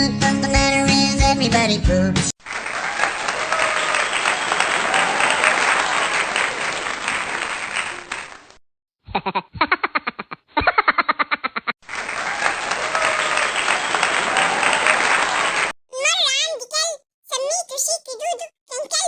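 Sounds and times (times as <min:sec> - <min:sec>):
crowd applause: 0:02.4 - 0:08.6, 0:11.8 - 0:15.8.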